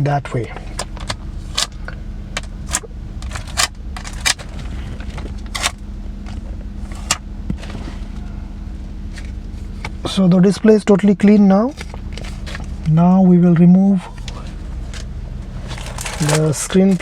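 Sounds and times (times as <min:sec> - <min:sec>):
steady low hum: 0:00.0 - 0:17.0
sharp clicks and crackles: 0:00.8 - 0:06.4.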